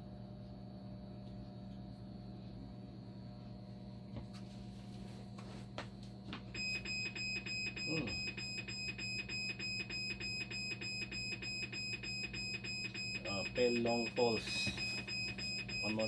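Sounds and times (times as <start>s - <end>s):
steady low hum: 0.0s - 16.0s
rapid high alarm beeps: 6.5s - 16.0s.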